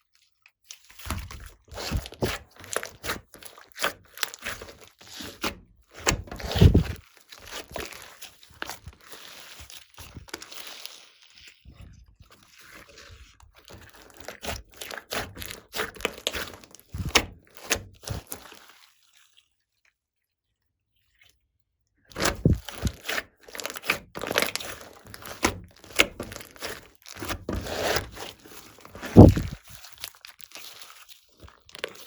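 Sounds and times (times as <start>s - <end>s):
slime squished by hand: 0.8s - 19.4s, 22.1s - 32.0s.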